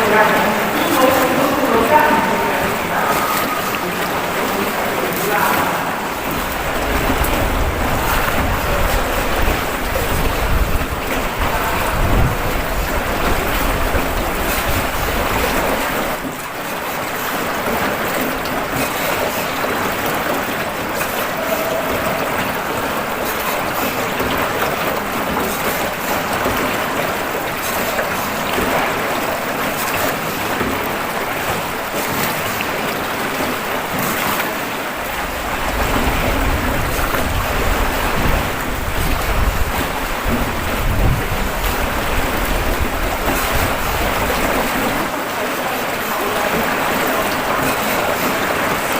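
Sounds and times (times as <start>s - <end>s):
water noise: 0.0s - 48.9s
wind rumbling on microphone: 4.8s - 16.3s, 35.1s - 45.1s.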